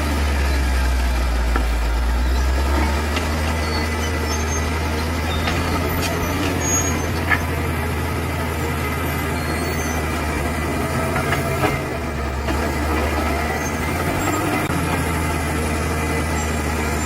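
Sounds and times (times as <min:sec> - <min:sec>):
bulldozer diesel engine running: 0:00.0 - 0:17.0.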